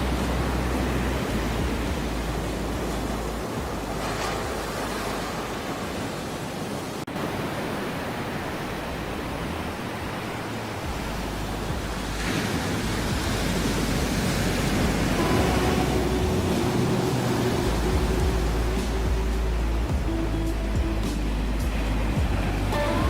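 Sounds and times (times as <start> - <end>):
faint steady tones: 0.0 - 23.0
ocean waves washing: 0.0 - 23.0.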